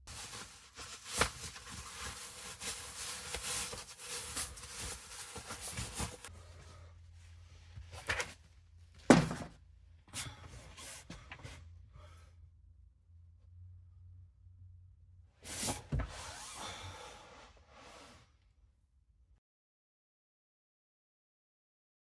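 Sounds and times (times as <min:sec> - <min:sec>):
rustling and rubbing: 0:00.1 - 0:06.7.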